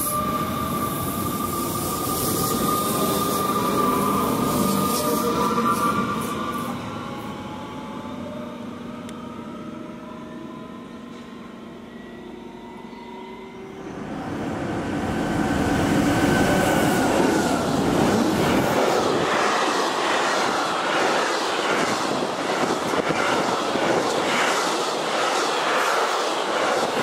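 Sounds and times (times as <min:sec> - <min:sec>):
freight train wheels rumbling: 0:14.2 - 0:27.0.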